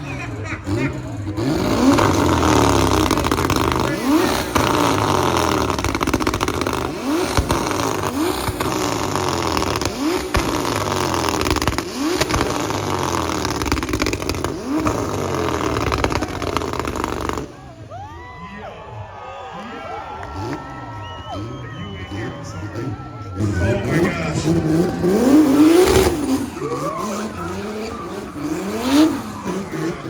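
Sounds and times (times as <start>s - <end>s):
car engine revving: 0.0s - 17.9s, 19.7s - 30.0s
quiet voices: 15.7s - 30.0s.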